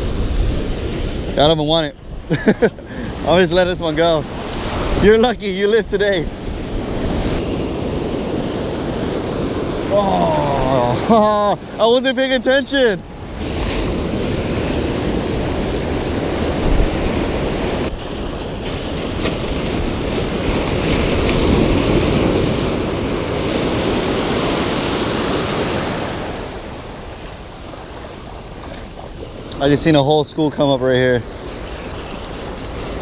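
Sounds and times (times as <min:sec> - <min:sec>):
ocean waves washing in: 0:00.0 - 0:33.0.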